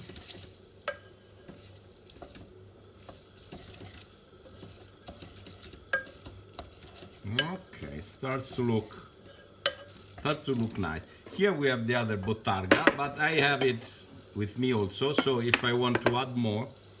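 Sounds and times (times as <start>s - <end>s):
pasta stirred in sizzling pan: 0.0s - 17.0s
utensil knocking on pan: 12.2s - 13.8s, 15.1s - 16.3s.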